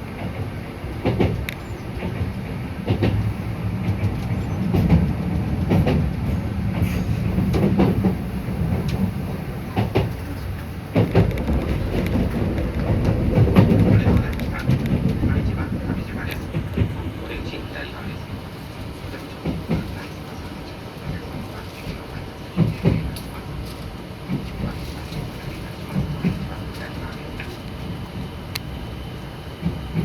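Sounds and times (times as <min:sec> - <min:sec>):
train wheels rumbling on track: 0:00.0 - 0:30.0
wheels clicking over rail joints: 0:01.0 - 0:17.2.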